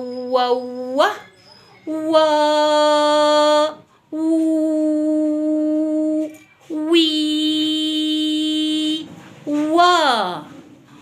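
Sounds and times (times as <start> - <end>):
woman singing held wooo notes: 0.0 - 10.5.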